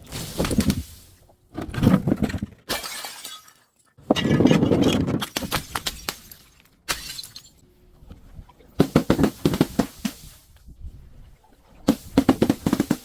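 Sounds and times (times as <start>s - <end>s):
glass crushing and cracking: 2.7s - 4.4s, 5.2s - 7.6s.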